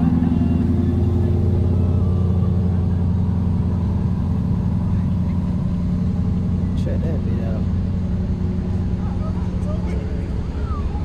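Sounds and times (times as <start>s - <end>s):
engine running at low revs: 0.0s - 11.0s.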